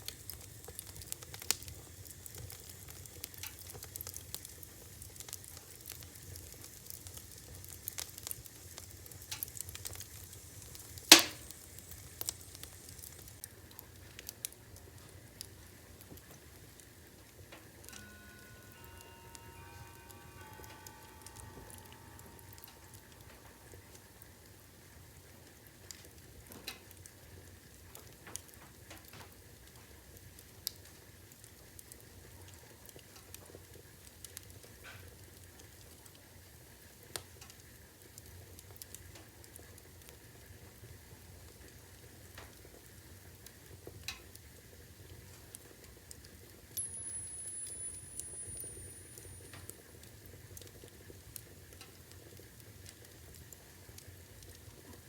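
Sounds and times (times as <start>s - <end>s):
wood fire crackling: 0.0s - 55.0s
thin high whistle: 17.9s - 24.9s, 46.8s - 49.7s.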